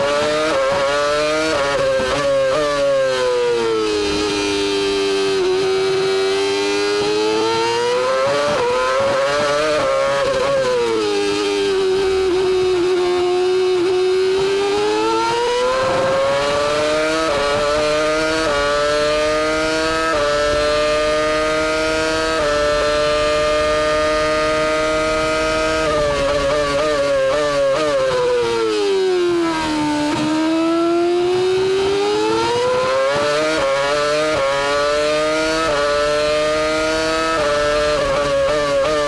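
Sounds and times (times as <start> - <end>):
racing car engine revving: 0.0 - 39.0.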